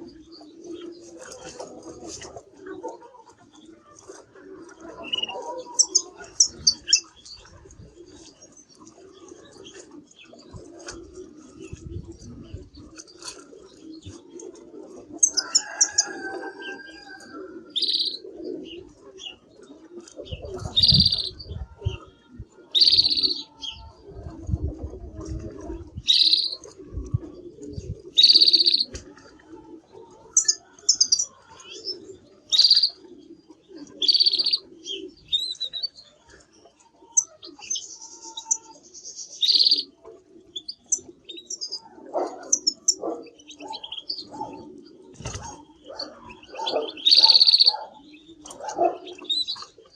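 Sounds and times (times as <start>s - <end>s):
canary chirping: 17.8s - 18.1s, 20.8s - 21.4s, 26.1s - 26.6s, 32.5s - 33.0s, 34.0s - 34.6s, 37.2s - 39.8s, 42.5s - 44.2s, 46.4s - 47.9s.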